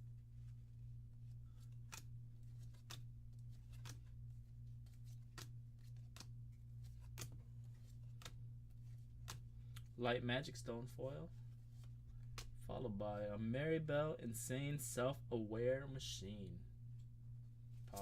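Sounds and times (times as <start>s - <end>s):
low electrical hum: 0.0s - 18.0s
trading cards snapping: 1.6s - 9.9s, 11.8s - 12.6s.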